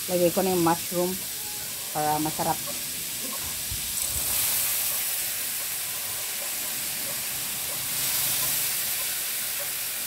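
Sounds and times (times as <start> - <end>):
mushrooms sizzling in oil: 0.0 - 10.0.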